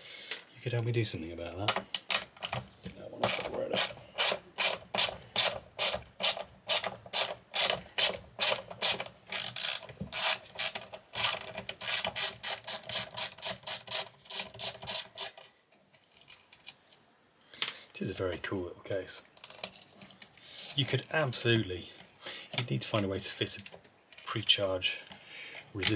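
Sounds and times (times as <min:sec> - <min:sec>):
ratchet wrench clicking: 0:03.3 - 0:15.4.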